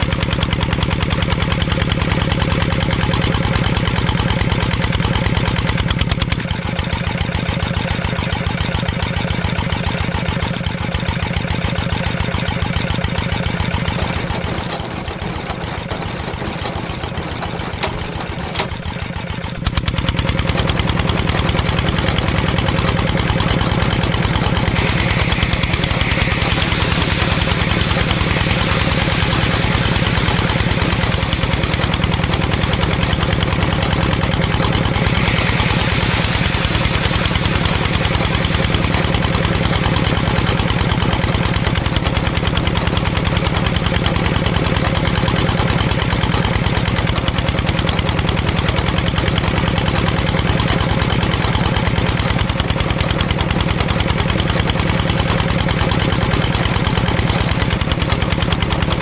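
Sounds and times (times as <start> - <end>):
small engine running: 0.0 - 59.0.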